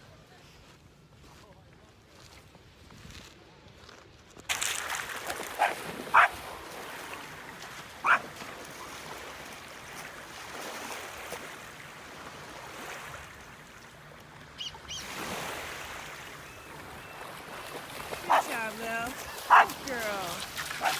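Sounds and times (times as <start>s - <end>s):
surf rushing: 4.6s - 14.1s, 14.7s - 20.9s
dog barking: 5.6s - 6.4s, 8.0s - 8.4s, 18.2s - 18.6s, 19.2s - 19.8s.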